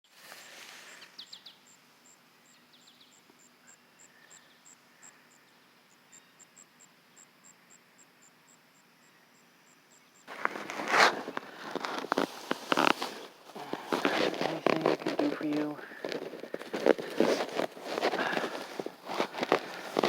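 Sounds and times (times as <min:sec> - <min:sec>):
faint bird chirps: 0:00.9 - 0:10.3
insect chirping: 0:00.9 - 0:20.0
loud rustle: 0:10.3 - 0:20.0.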